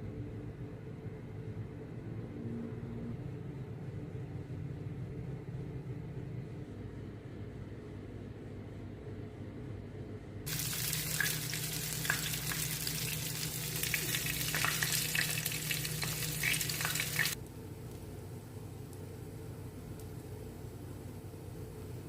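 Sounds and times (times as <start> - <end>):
low steady hum: 10.3 - 22.0
fish frying in hot oil: 10.5 - 17.4.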